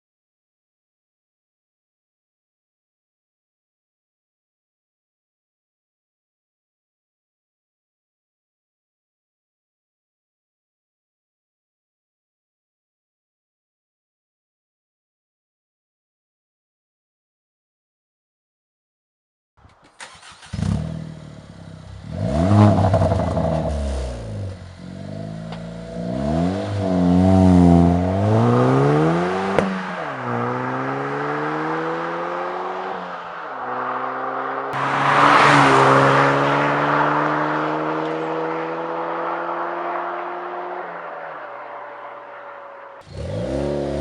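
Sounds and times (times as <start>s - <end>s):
turbocharged car engine revving: 20.0s - 33.0s, 33.7s - 40.8s, 43.0s - 44.0s.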